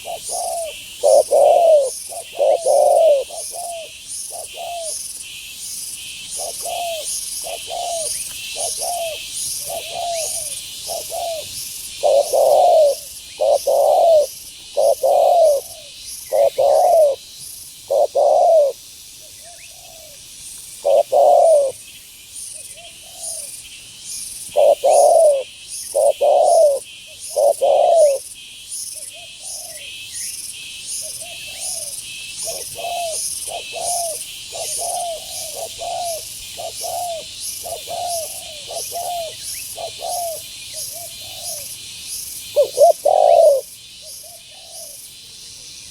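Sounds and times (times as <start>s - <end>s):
doves cooing: 0.0s - 5.0s, 6.4s - 17.2s, 17.9s - 18.8s, 20.8s - 21.8s, 24.5s - 28.3s, 31.0s - 41.8s, 42.6s - 45.0s.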